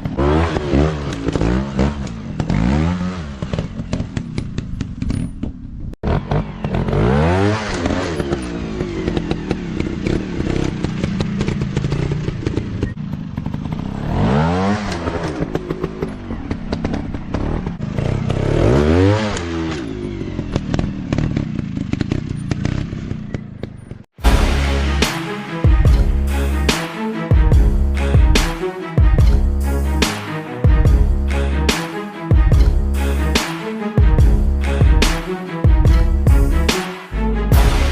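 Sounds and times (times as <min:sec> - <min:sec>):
dirt bike engine revving: 0:00.0 - 0:04.5, 0:06.0 - 0:23.3.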